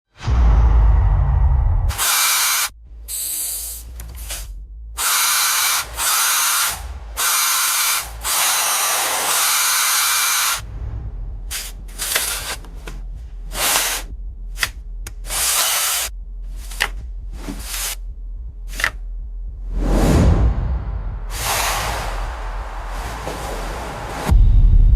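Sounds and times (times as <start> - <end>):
hissing spray bursts: 1.9 - 10.6, 15.3 - 16.1, 21.3 - 23.6.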